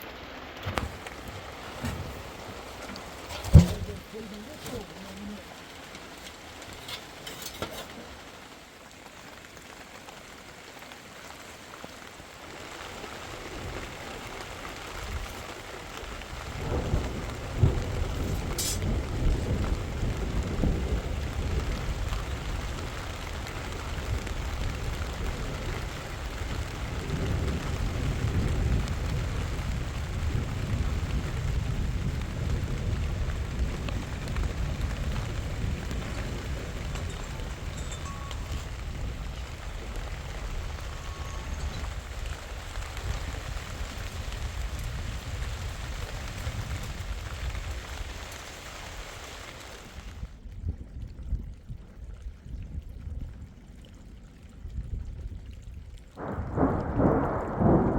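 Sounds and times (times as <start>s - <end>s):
thunder rumbling and cracking: 0.0s - 7.2s, 12.6s - 48.6s, 56.2s - 57.9s
steady rain falling: 0.0s - 57.9s.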